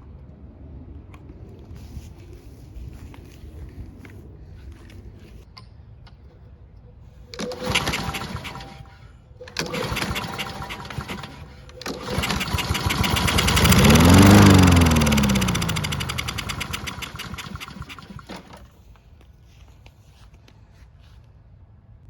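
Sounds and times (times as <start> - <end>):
lawn mower engine starting: 7.3 - 18.8.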